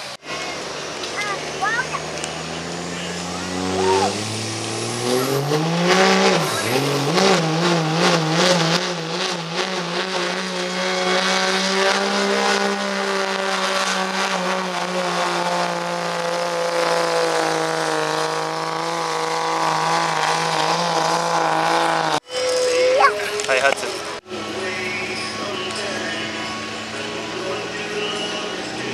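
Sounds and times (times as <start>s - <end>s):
diesel truck engine at full throttle: 0.0s - 22.2s, 24.0s - 28.9s.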